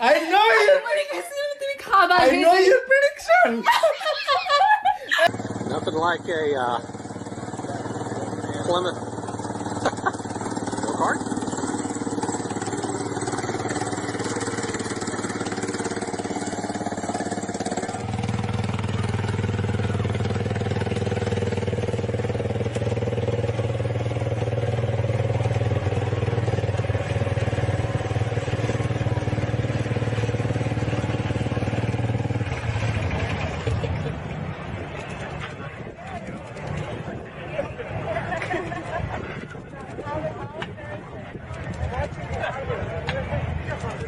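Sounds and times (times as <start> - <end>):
engine running: 5.3 - 44.0.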